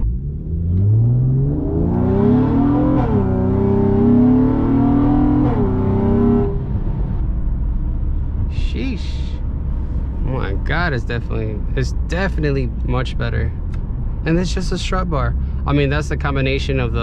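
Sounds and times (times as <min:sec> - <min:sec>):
car engine accelerating hard: 0:00.0 - 0:07.4.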